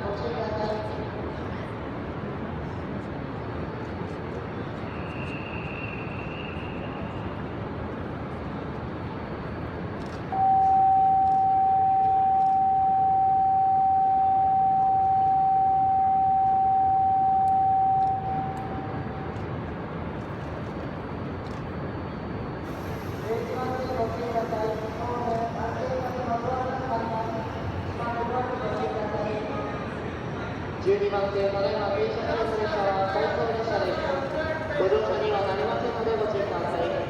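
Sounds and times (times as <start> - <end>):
station platform hum: 0.0 - 37.0
electronic warning tone: 10.4 - 18.9.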